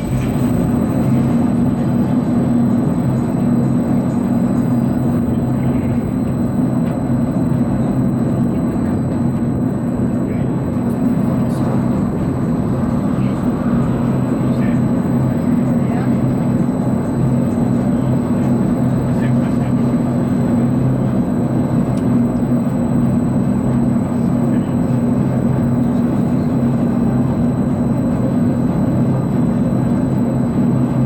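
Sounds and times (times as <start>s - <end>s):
low machine hum: 0.0s - 31.0s
faint people's voices: 8.0s - 21.0s.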